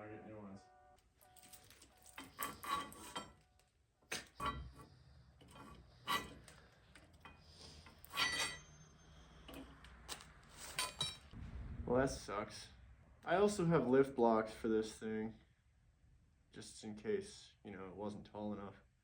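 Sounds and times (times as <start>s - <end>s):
low steady hum: 0.0s - 17.6s
metal tools clanking: 1.2s - 9.8s, 10.6s - 11.3s.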